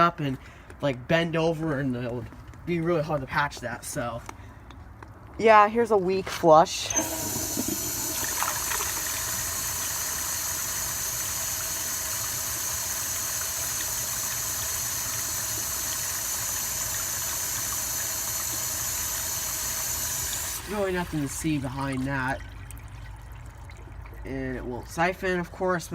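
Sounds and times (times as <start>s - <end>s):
hose water running into toilet: 6.9s - 25.1s.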